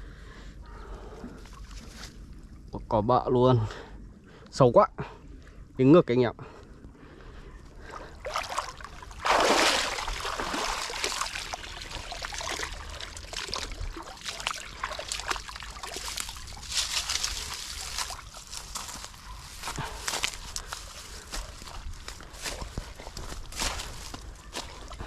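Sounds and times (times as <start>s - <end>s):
person wading through water: 0.9s - 2.6s, 6.8s - 25.0s.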